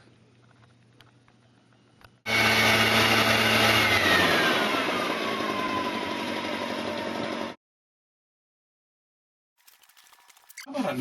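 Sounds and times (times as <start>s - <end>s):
leaf blower running: 2.3s - 7.6s.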